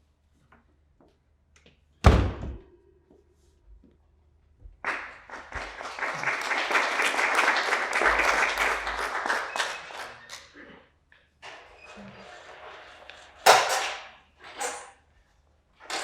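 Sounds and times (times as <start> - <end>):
theatre audience applauding: 4.8 - 10.5.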